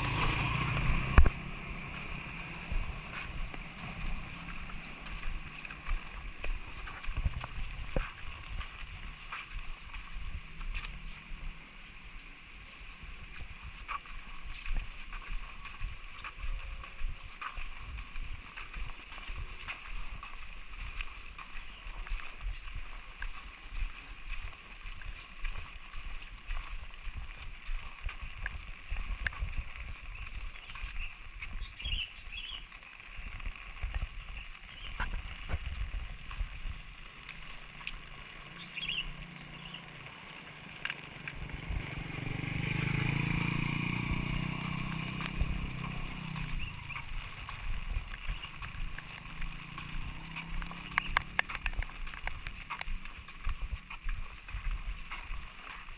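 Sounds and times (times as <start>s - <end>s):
light drizzle falling: 0.0s - 14.3s, 17.3s - 55.9s
soft footsteps: 0.0s - 55.9s
faint clicks: 50.4s - 53.1s.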